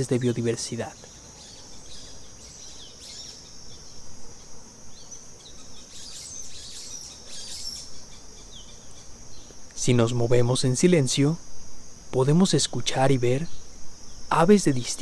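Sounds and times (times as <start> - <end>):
birds chirping: 0.0 - 10.1
high-pitched insect drone: 0.0 - 15.0.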